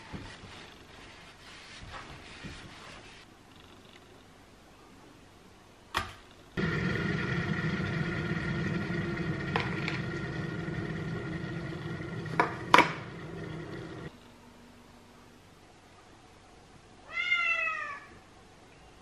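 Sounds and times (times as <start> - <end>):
steady machine hum: 6.6 - 15.2.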